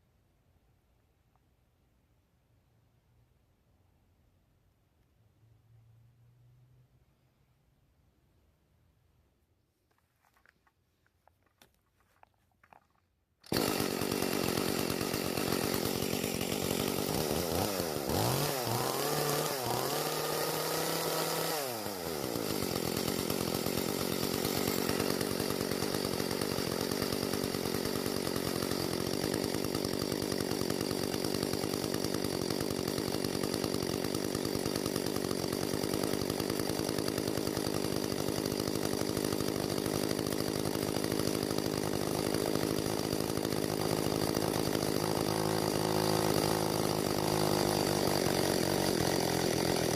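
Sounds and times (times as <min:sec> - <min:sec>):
chainsaw engine revving: 0:13.4 - 0:49.9.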